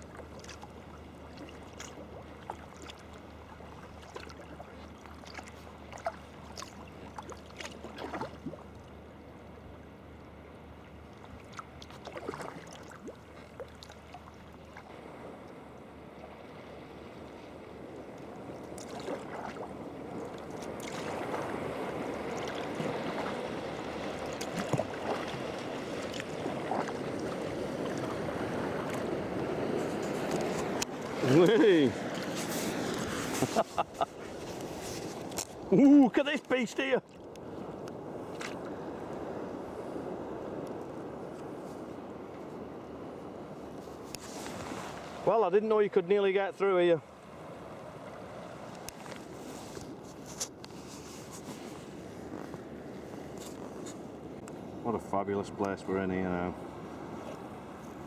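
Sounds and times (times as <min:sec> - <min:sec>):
drips against hull: 0:00.0 - 0:09.0, 0:22.3 - 0:28.2
paddle blades splashing: 0:00.0 - 0:58.0
sea water wash: 0:00.0 - 0:58.0.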